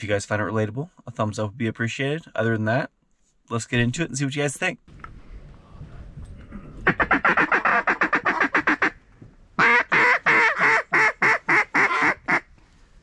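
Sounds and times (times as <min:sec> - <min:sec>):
duck quacking: 0:06.8 - 0:09.0, 0:09.6 - 0:12.5.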